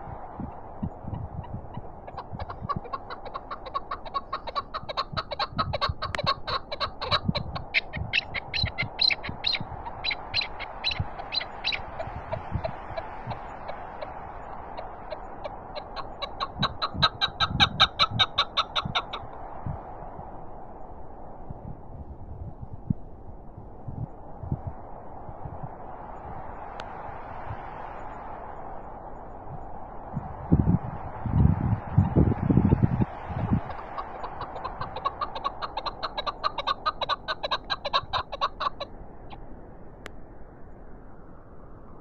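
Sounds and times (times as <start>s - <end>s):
wind on microphone: 0.0s - 42.0s
partridge calling rapid notes: 0.8s - 19.3s, 33.0s - 38.9s.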